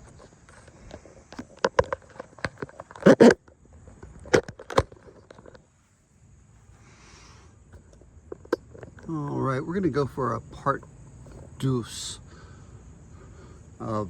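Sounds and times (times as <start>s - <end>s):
sharp clicks and knocks: 0.0s - 5.6s.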